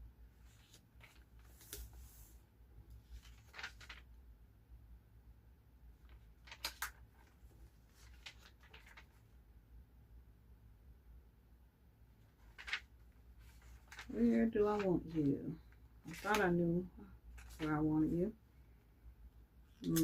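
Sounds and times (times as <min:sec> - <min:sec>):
low room hum: 0:00.0 - 0:20.0
paper rustling and clicking: 0:00.5 - 0:02.2, 0:03.0 - 0:04.2, 0:06.0 - 0:09.3, 0:12.3 - 0:16.6, 0:17.3 - 0:17.9, 0:19.8 - 0:20.0.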